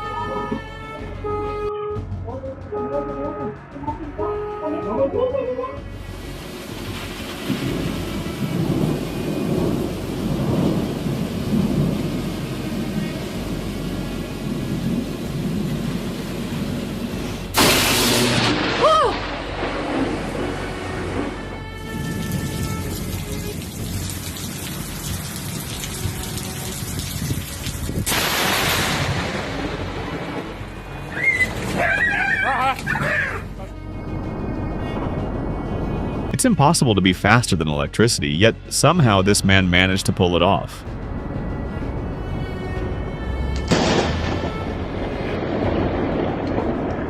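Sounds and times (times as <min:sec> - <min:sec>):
rain hissing: 0:05.9 - 0:31.8
thunder rumbling: 0:05.9 - 0:32.5, 0:33.4 - 0:36.4, 0:40.8 - 0:47.0.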